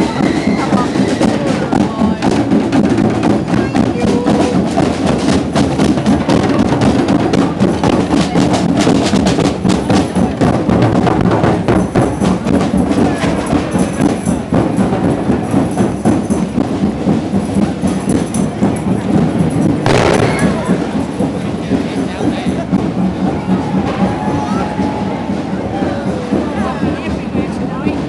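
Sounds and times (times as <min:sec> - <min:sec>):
band music from procession: 0:00.0 - 0:28.0
fast drumming and percussion: 0:00.0 - 0:28.0.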